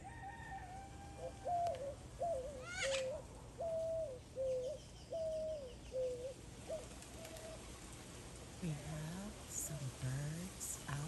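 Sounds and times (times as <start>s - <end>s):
bird calling alternating notes: 1.2s - 6.4s.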